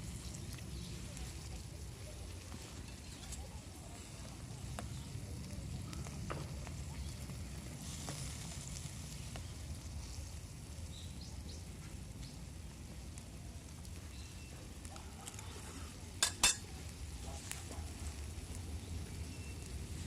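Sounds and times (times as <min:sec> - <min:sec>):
fire crackling: 0:00.0 - 0:20.0
food sizzling on griddle: 0:16.2 - 0:20.0.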